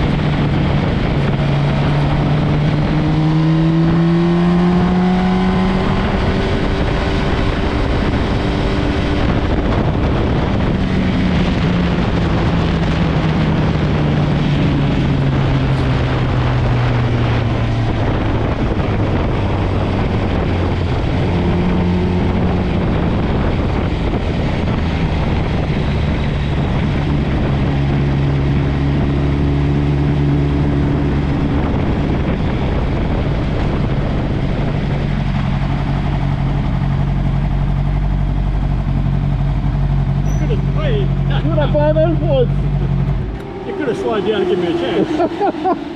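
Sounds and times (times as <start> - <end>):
motorcycle engine running: 0.0 - 45.9
wind rush over microphone: 0.0 - 45.9.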